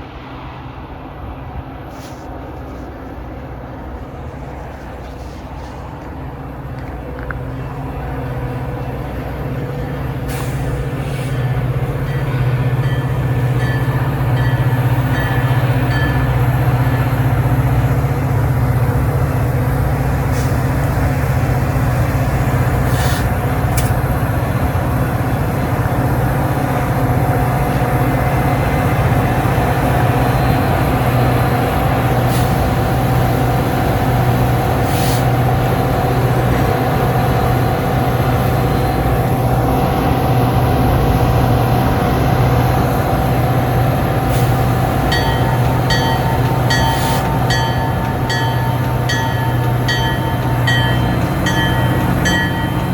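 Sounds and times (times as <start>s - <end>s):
train running drone: 0.0s - 52.9s
steady high tone: 45.1s - 52.9s.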